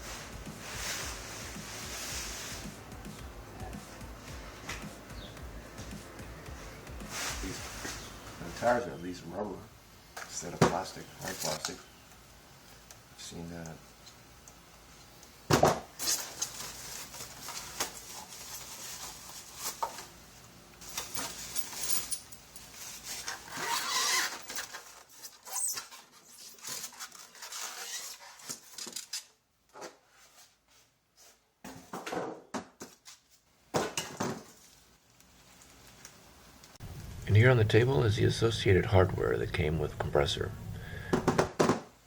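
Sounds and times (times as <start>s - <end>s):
rustling: 0.0s - 8.8s, 16.0s - 29.4s, 34.4s - 37.4s.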